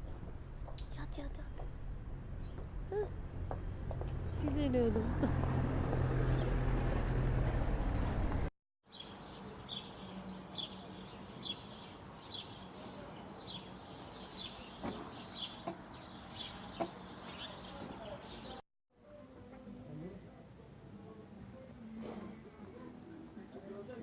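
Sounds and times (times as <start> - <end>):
small birds chirping: 8.9 - 18.6.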